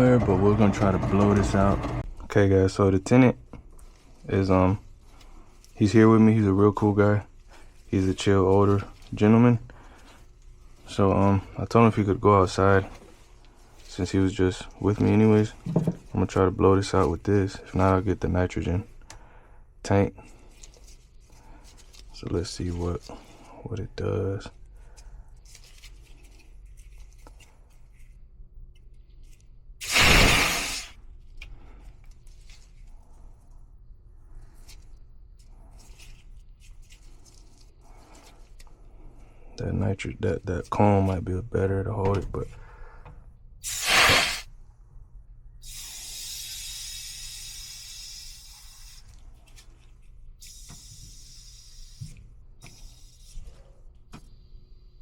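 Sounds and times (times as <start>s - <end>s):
compressed gas hissing blast: 29.8s - 31.0s, 43.6s - 44.5s, 45.6s - 48.9s.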